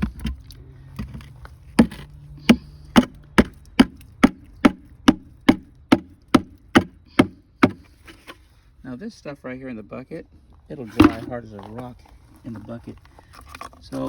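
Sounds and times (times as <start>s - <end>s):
bucket knocking: 1.8s - 7.8s, 11.0s - 11.4s.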